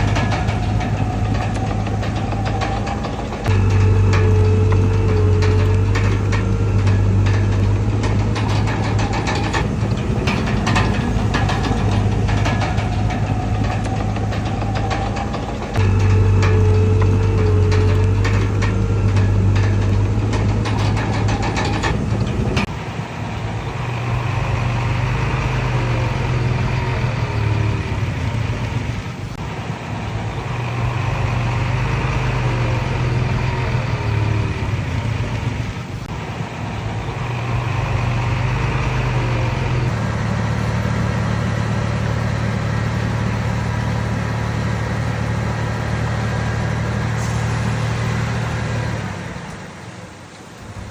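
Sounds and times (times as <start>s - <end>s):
machine squeaks: 0.0s - 22.8s
bulldozer diesel engine running: 0.0s - 50.9s.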